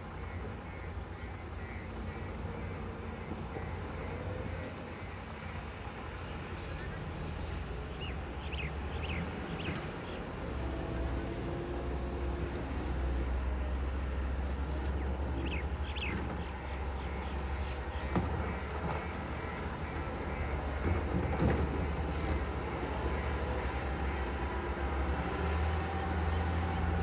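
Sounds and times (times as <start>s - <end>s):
diesel machinery engine rumbling: 0.0s - 27.0s
birds chirping: 14.8s - 23.8s.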